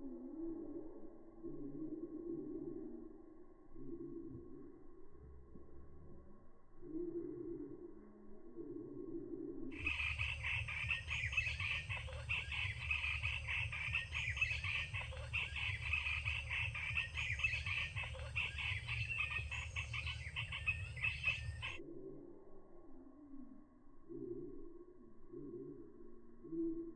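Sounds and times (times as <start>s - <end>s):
low rumble: 0.9s - 26.4s
small birds chirping: 9.8s - 21.8s.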